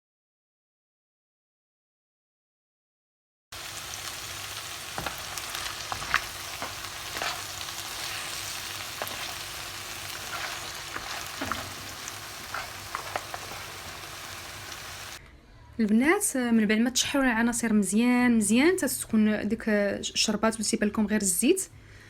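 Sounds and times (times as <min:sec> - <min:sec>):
food sizzling in hot oil: 0:03.6 - 0:15.2.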